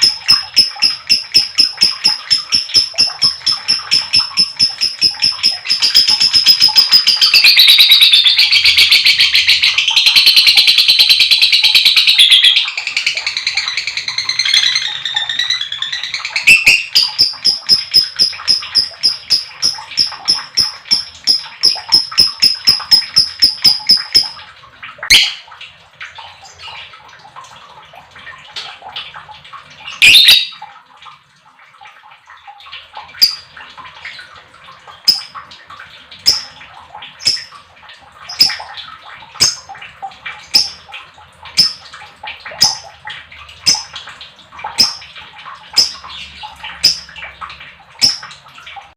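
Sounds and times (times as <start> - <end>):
lovebird chattering: 0.0 - 24.4, 30.0 - 30.6, 36.3 - 36.5, 38.3 - 38.6
rapid shrill bird chirps: 0.0 - 24.4, 30.0 - 30.5
sharp bird calls: 0.0 - 24.4, 30.0 - 30.6.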